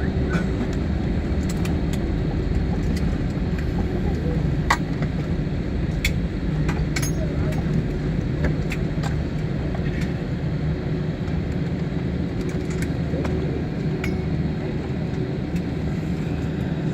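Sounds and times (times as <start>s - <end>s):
airliner cabin rumble: 0.0s - 16.9s.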